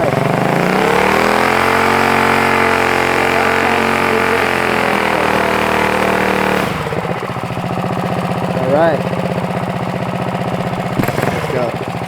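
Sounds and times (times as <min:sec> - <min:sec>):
mini bike engine revving: 0:00.0 - 0:12.0.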